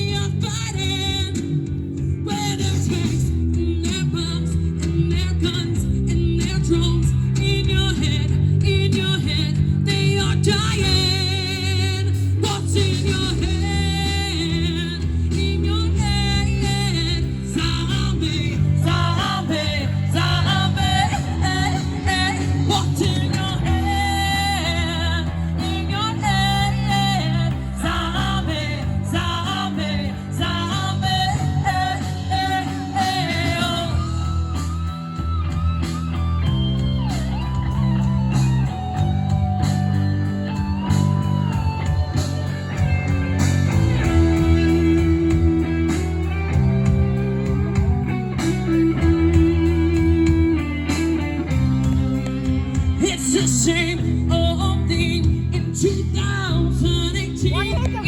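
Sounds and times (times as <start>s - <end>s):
rock band playing: 0.0s - 58.0s
person singing: 2.2s - 35.2s, 53.0s - 58.0s.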